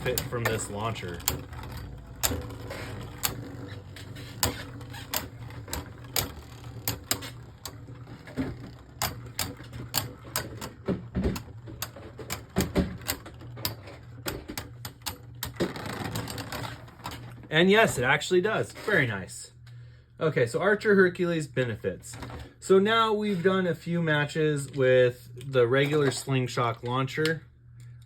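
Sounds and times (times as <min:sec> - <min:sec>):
spinning tops whirring: 0:00.0 - 0:18.0.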